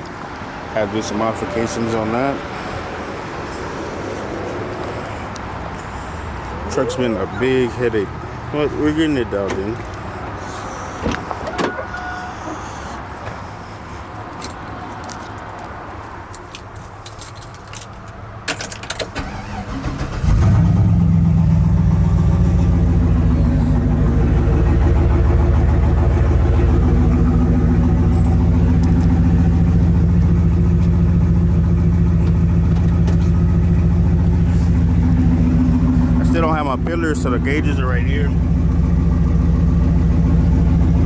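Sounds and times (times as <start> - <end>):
truck engine starting and idling: 18.6 - 41.0.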